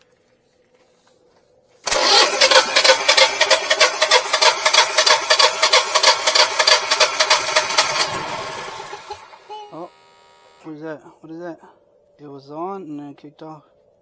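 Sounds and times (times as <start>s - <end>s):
generator engine running: 1.8s - 10.9s.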